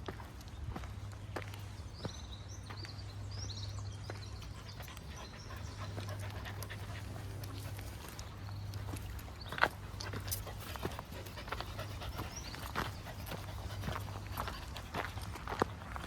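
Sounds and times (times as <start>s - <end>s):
dog panting: 4.4s - 16.0s.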